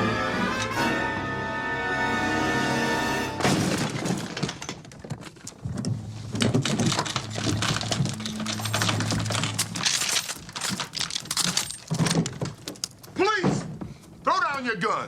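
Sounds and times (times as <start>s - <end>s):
music with held notes: 0.0s - 3.4s
crashes thuds and breaking: 3.4s - 13.8s.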